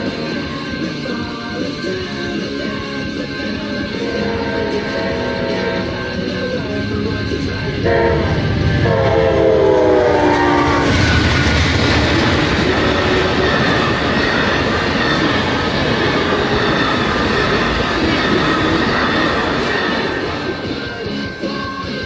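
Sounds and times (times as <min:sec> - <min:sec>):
train cars rumbling and clattering: 0:00.0 - 0:22.0
train horn chord: 0:04.0 - 0:06.6, 0:07.8 - 0:11.1.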